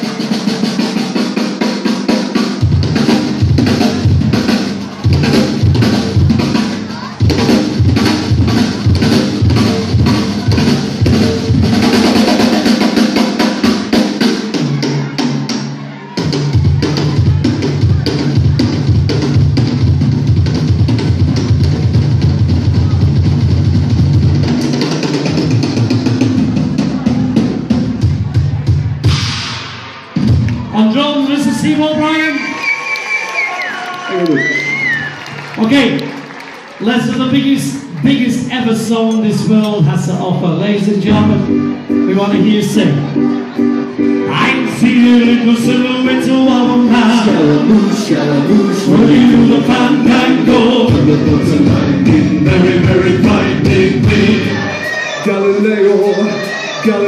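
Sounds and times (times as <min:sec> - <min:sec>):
live rock band playing: 0:00.0 - 0:30.7, 0:40.8 - 0:57.0
drum kit kick and snare beat: 0:00.0 - 0:30.8, 0:43.1 - 0:54.8.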